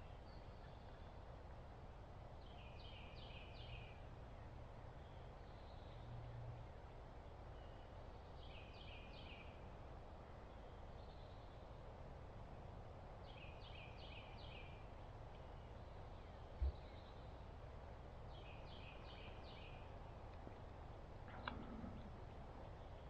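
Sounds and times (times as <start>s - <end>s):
faint outdoor hiss: 0.0s - 23.0s
bird singing: 2.4s - 4.0s, 7.6s - 9.6s, 13.2s - 17.4s, 18.3s - 20.0s.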